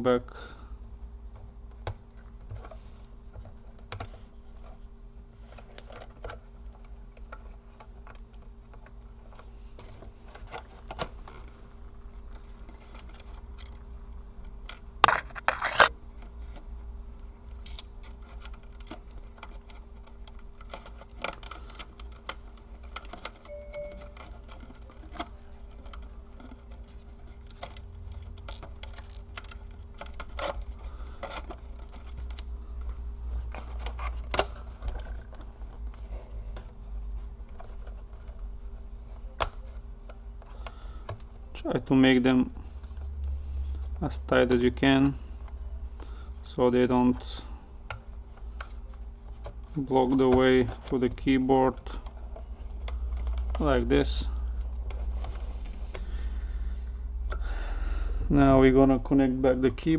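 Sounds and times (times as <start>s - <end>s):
plastic parts clicking into place: 17.5s - 23.5s, 24.1s - 36.7s.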